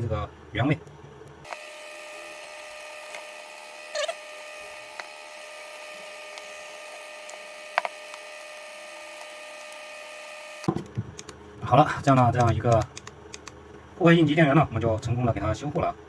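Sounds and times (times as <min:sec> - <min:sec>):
electrical hum with faint whine: 0:00.0 - 0:16.0.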